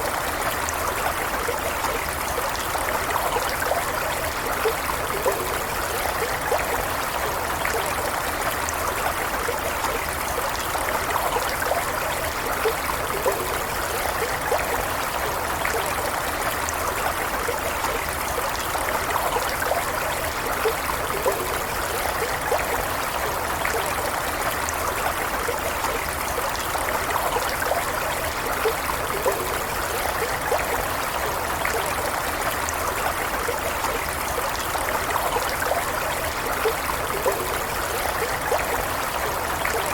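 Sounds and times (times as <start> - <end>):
stream of running water: 0.0 - 39.9.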